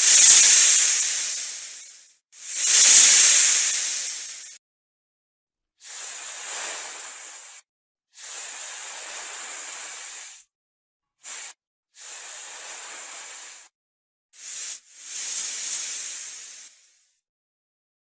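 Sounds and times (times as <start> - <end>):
snake hissing: 0.0 - 4.6, 5.8 - 7.6, 8.2 - 10.5, 11.2 - 13.7, 14.4 - 17.2.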